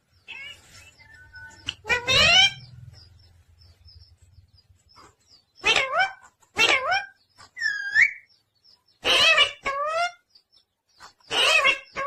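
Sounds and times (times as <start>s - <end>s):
parrot harsh calls: 1.8s - 2.7s, 5.6s - 8.2s, 9.0s - 10.2s, 11.3s - 12.0s.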